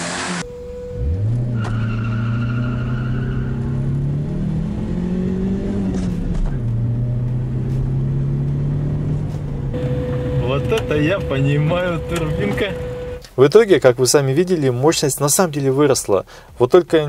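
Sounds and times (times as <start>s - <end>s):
car engine accelerating: 0.0s - 13.2s
tyre squeal: 1.0s - 3.8s.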